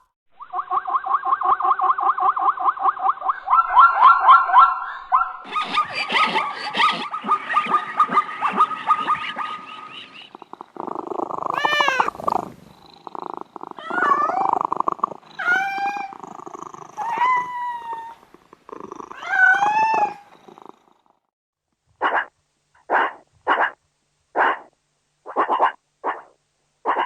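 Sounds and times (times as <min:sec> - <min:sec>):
dog barking: 0:03.2 - 0:10.0, 0:22.0 - 0:23.8, 0:24.4 - 0:24.7, 0:25.3 - 0:27.0
cat purring: 0:09.2 - 0:21.3
cat meowing: 0:11.4 - 0:12.6, 0:13.7 - 0:18.2, 0:19.1 - 0:20.4.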